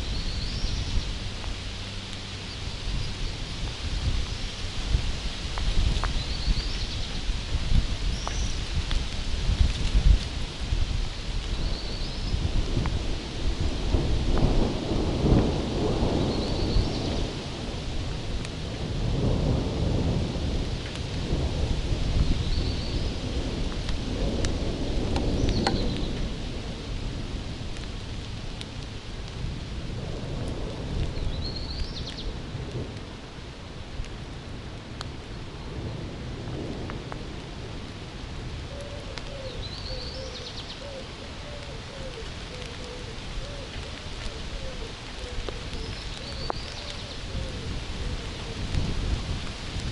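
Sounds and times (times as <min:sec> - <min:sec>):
heavy rain: 0:00.0 - 0:49.9
thunder rumbling: 0:00.0 - 0:49.9
low wavering cooing call: 0:38.7 - 0:48.7.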